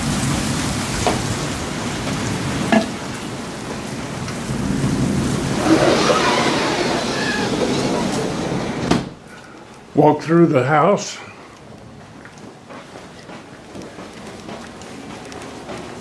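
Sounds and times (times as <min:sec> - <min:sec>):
thunder rumbling: 0:00.0 - 0:09.2
heavy rain falling: 0:00.0 - 0:10.0.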